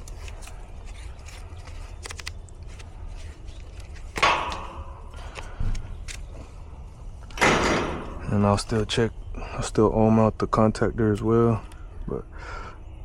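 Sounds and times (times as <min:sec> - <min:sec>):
metal clank: 0:07.4 - 0:08.3.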